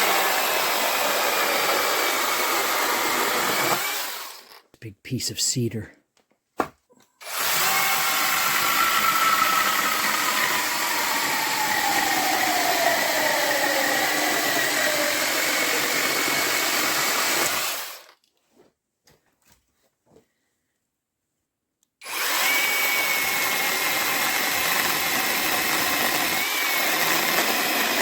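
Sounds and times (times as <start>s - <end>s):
chainsaw cutting wood: 0.0s - 4.6s, 7.2s - 18.2s, 22.0s - 28.0s.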